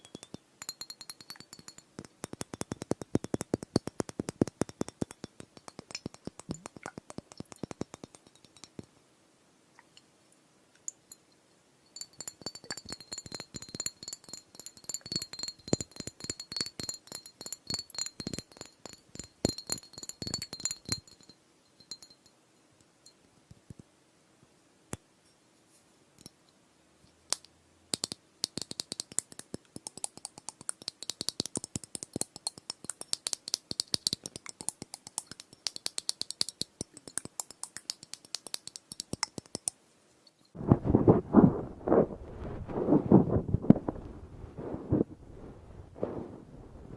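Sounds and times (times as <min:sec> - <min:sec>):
glass ringing high tone: 0:00.0 - 0:01.9, 0:11.1 - 0:22.4
glass globes tapped and clinking: 0:00.0 - 0:09.0, 0:10.8 - 0:23.9, 0:27.2 - 0:40.6.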